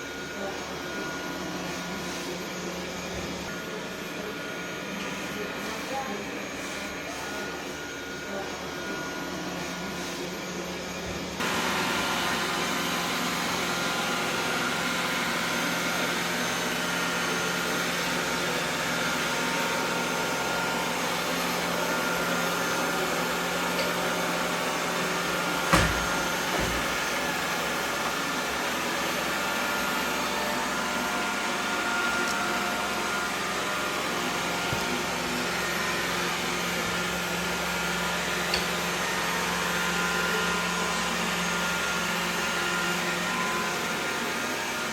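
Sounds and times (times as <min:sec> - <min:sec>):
robot vacuum whirring: 0:11.3 - 0:44.9.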